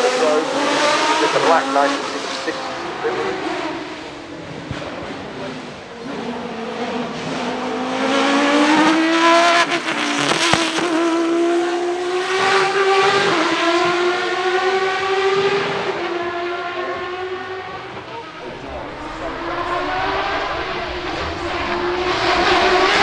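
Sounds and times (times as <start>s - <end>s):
racing car engine accelerating: 18.4s - 23.0s.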